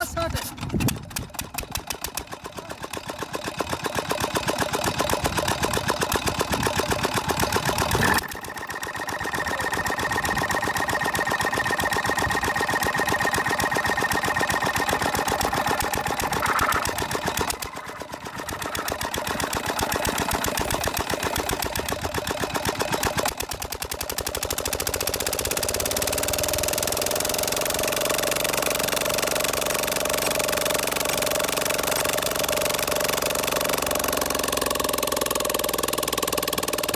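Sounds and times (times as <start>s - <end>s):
diesel engine running: 0.0s - 36.9s.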